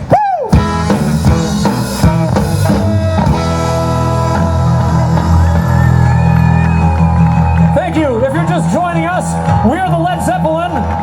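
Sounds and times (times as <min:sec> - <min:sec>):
rock and roll band playing: 0:00.0 - 0:11.0.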